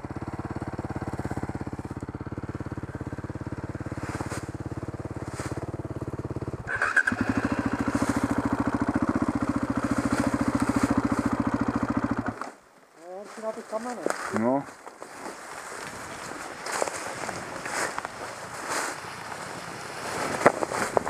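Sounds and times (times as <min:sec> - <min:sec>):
motorcycle engine idling: 0:00.0 - 0:12.7.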